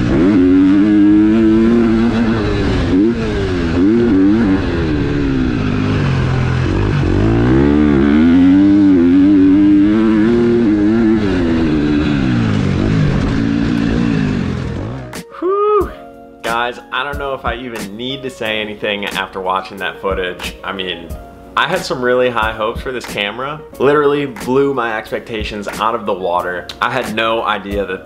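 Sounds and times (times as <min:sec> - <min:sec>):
motocross engine revving: 0:00.0 - 0:15.2.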